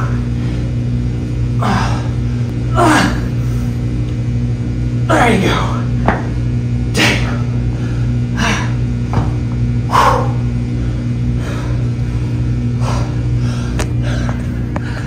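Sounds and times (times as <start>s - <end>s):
low electrical hum: 0.0s - 15.0s
person breathing heavily: 1.6s - 3.8s, 7.6s - 8.8s, 9.9s - 15.0s.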